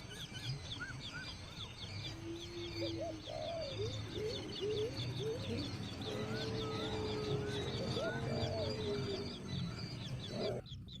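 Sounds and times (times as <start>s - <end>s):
birds chirping: 0.0s - 11.0s
low steady cooing: 2.0s - 10.6s.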